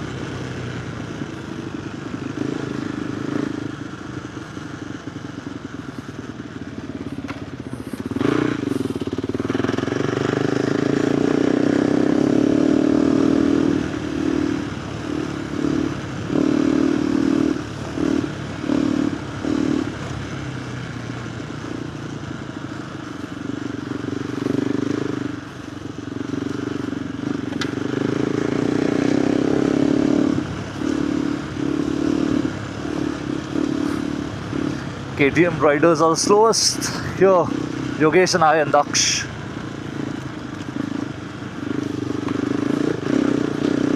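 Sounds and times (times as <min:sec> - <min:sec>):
motorcycle engine under load: 0:00.0 - 0:43.9.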